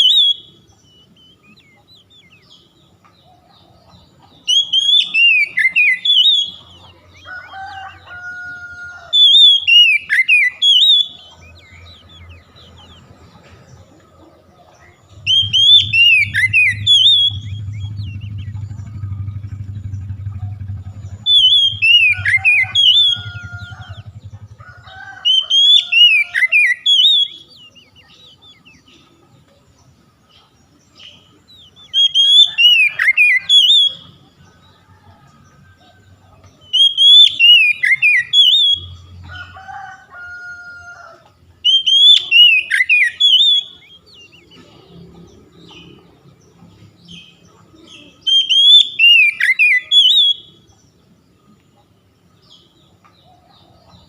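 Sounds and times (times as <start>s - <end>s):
bird singing whistled phrases: 0.0s - 2.4s, 4.4s - 6.7s, 9.1s - 11.8s, 15.2s - 18.8s, 20.9s - 24.1s, 25.3s - 28.2s, 31.7s - 34.2s, 36.7s - 39.0s, 41.6s - 44.6s, 48.1s - 50.6s
faint low hum: 11.2s - 25.2s.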